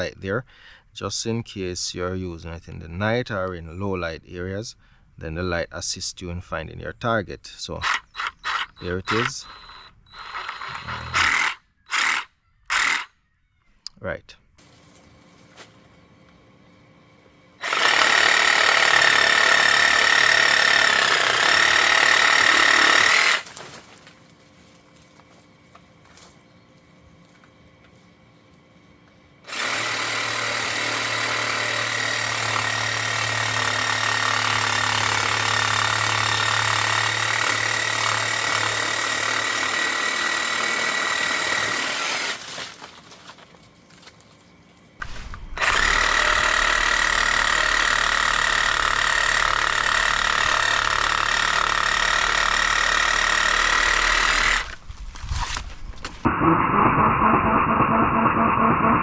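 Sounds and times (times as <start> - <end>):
reciprocating saw running: 7.8 - 13.1, 17.6 - 23.5, 29.5 - 42.4, 45.5 - 54.8, 56.3 - 59.0.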